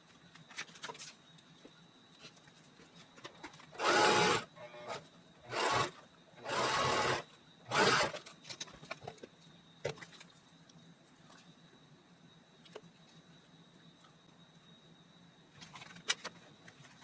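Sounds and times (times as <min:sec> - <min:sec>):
paper rasping strokes: 0:03.8 - 0:04.5.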